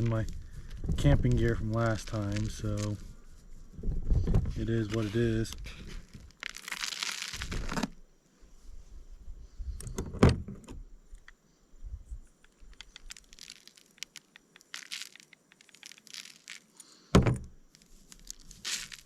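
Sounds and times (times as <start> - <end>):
thump on table: 17.1 - 17.5.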